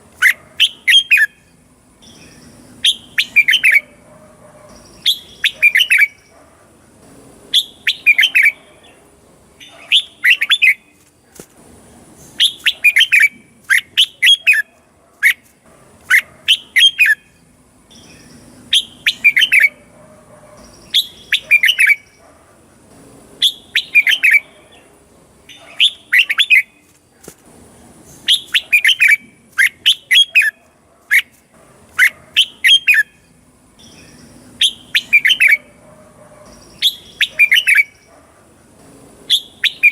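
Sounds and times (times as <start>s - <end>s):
bird singing whistled phrases: 2.1s - 3.9s, 5.0s - 6.3s, 7.5s - 8.6s, 12.4s - 14.7s, 18.0s - 19.8s, 20.7s - 22.2s, 23.4s - 24.4s, 28.2s - 30.6s, 33.8s - 35.7s, 36.5s - 38.0s, 39.3s - 39.9s.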